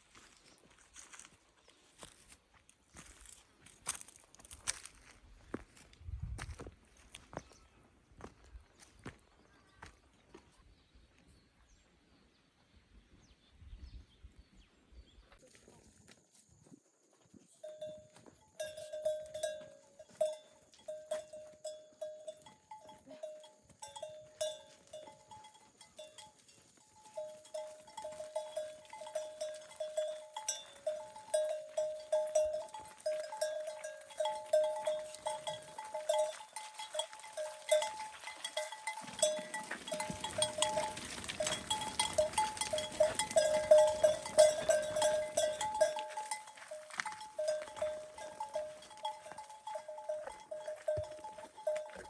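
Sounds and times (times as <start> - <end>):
livestock neck bells clanking: 17.5 - 52.0.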